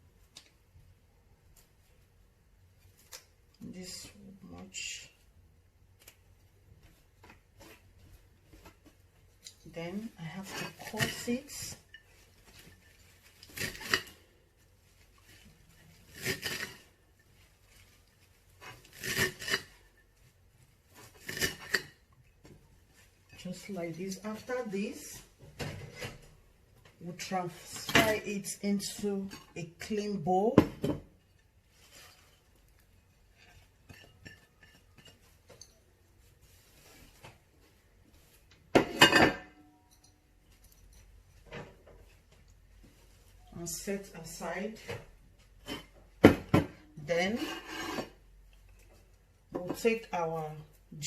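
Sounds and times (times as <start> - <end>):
knife cutting parsley: 16.1 - 16.8, 18.6 - 19.7.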